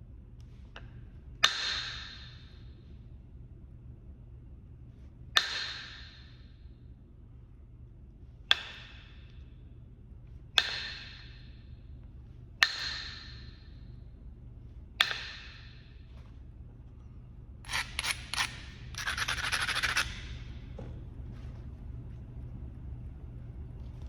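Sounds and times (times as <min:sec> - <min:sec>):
stone scraping: 0:17.7 - 0:20.4.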